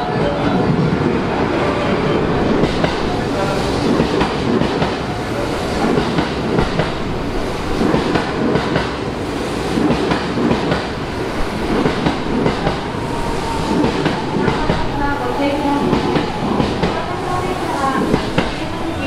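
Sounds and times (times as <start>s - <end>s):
train wheels clacking over rail joints: 5.8s - 9.0s, 9.7s - 13.0s.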